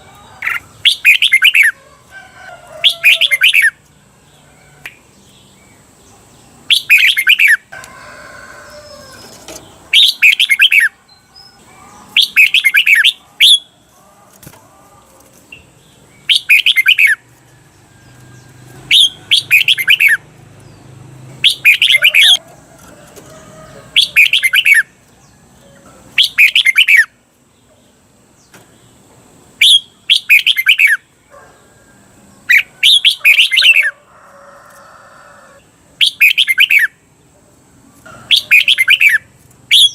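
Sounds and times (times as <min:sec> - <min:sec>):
bulbul singing warbled phrases: 0:00.0 - 0:01.8, 0:02.8 - 0:07.7, 0:09.2 - 0:14.6, 0:15.2 - 0:17.3, 0:18.4 - 0:22.4, 0:23.8 - 0:25.0, 0:26.1 - 0:27.2, 0:29.6 - 0:31.5, 0:32.4 - 0:34.0, 0:35.9 - 0:37.2, 0:38.3 - 0:39.9.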